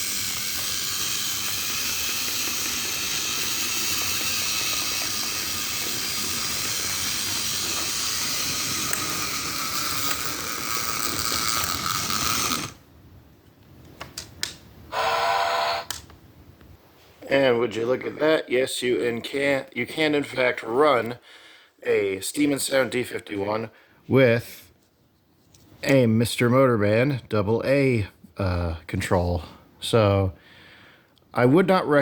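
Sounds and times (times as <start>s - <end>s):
toy train motor clattering: 0.0s - 12.8s, 14.9s - 16.0s
toy train sound unit: 0.0s - 12.8s, 14.9s - 16.0s.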